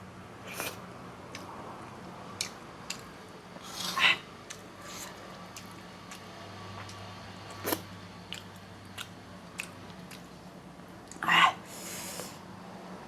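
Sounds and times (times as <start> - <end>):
person chewing food: 0.5 - 11.2.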